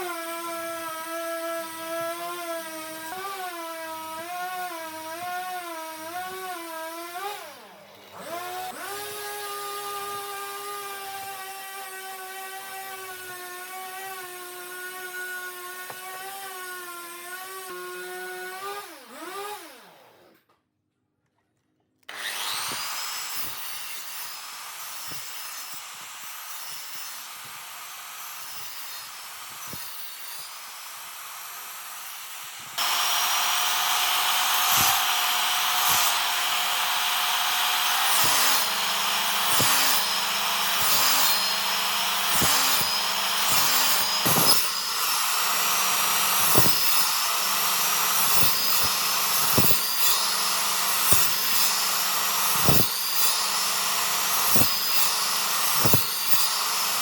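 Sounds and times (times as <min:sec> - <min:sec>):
power tool rasping wood: 0:00.0 - 0:20.3, 0:22.1 - 0:57.0
electric motor whining: 0:32.6 - 0:57.0.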